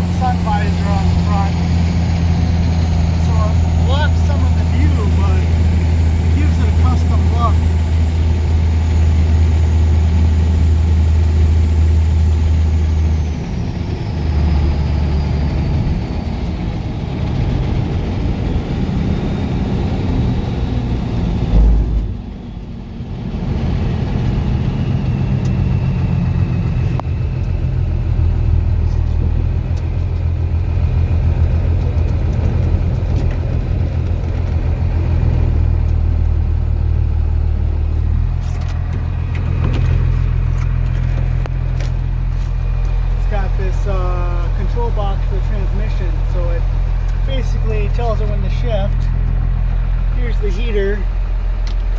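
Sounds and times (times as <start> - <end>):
diesel engine droning: 0.0 - 51.9
thump: 21.5 - 22.3.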